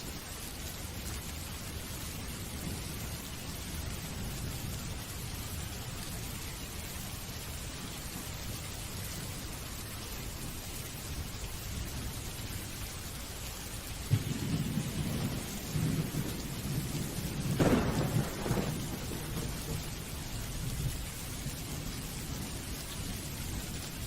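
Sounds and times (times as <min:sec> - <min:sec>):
steady rain: 0:00.0 - 0:24.0
thunder rumbling and cracking: 0:14.1 - 0:23.7.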